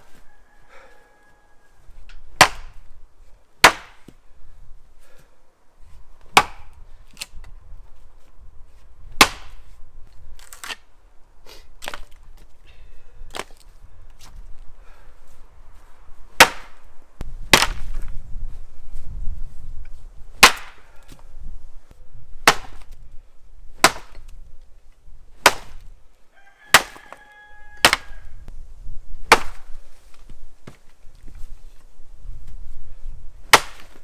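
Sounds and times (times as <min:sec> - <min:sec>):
axe chopping wood: 0:02.2 - 0:02.9, 0:03.6 - 0:04.2, 0:06.3 - 0:07.4, 0:09.1 - 0:09.8, 0:11.8 - 0:12.2, 0:13.3 - 0:13.6, 0:16.4 - 0:16.9, 0:17.5 - 0:18.2, 0:20.4 - 0:21.2, 0:22.4 - 0:23.0, 0:23.7 - 0:24.5, 0:25.3 - 0:25.9, 0:26.7 - 0:28.3, 0:29.3 - 0:30.8, 0:33.5 - 0:34.0.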